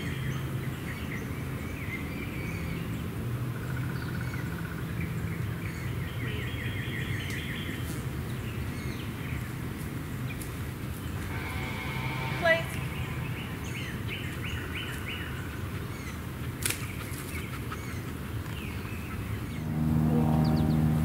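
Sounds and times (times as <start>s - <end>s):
songbirds trilling: 10.3s - 21.0s
low hum: 11.2s - 14.6s, 19.4s - 21.0s.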